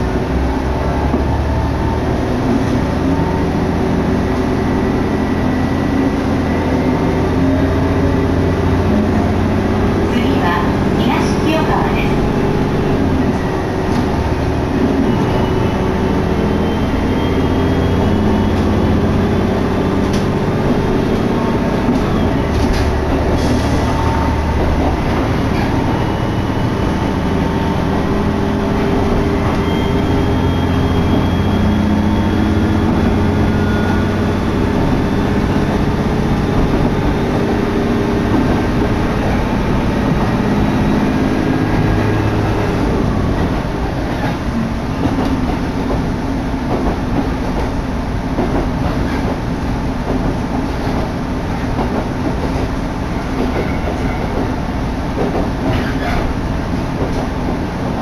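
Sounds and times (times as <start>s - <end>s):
diesel engine drone: 0.0s - 53.4s
wheels rumbling on rails: 0.0s - 58.0s.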